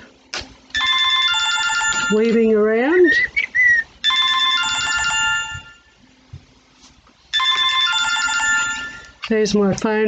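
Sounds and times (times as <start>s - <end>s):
phone ringing: 0.8s - 2.6s, 4.0s - 6.0s, 7.3s - 9.2s.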